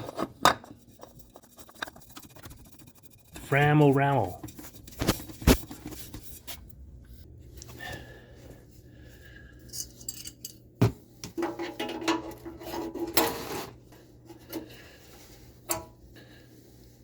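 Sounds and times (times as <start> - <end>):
metal tools clinking: 9.7 - 10.6.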